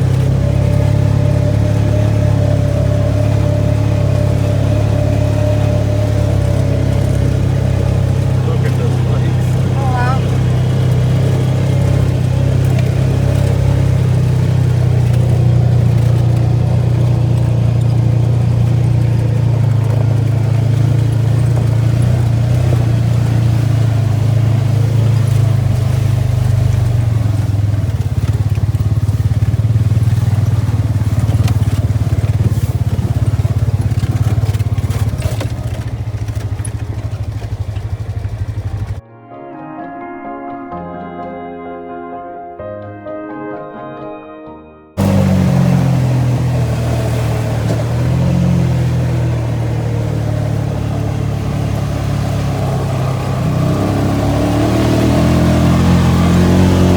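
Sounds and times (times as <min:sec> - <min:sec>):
atv engine running: 0:00.0 - 0:39.0, 0:45.0 - 0:56.9.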